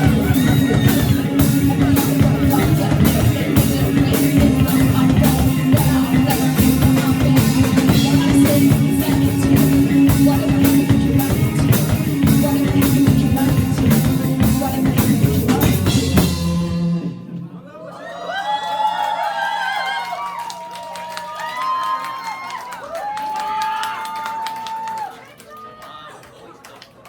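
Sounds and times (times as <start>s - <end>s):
drum kit beat: 0.0s - 17.4s
live band playing: 0.0s - 17.5s.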